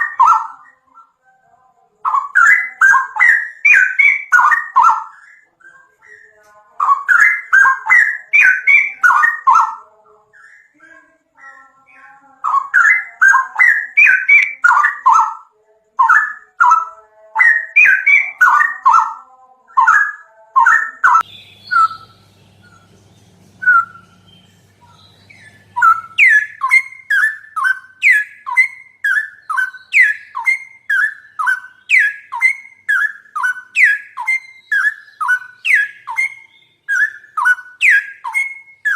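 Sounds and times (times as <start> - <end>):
songbird chirping: 0.0 - 38.9
faint low hum: 21.0 - 31.7.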